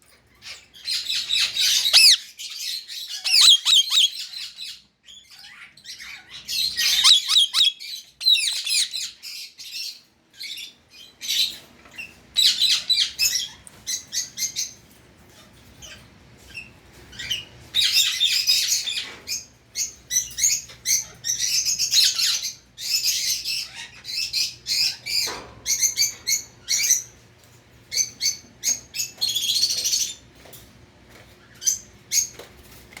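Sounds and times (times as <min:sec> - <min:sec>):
parakeet chattering: 0:00.9 - 0:02.4, 0:03.1 - 0:04.4, 0:06.6 - 0:09.2.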